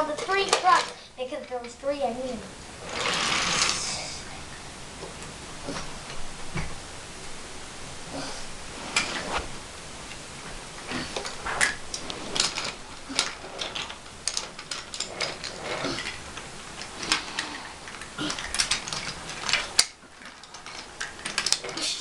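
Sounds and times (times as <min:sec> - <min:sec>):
wooden toys clicking and clacking: 0:00.0 - 0:03.9, 0:11.1 - 0:22.0.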